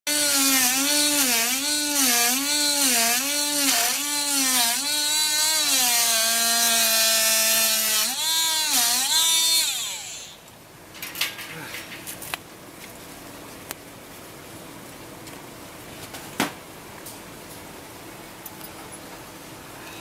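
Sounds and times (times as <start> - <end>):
power tool motor cutting: 0.1 - 10.4.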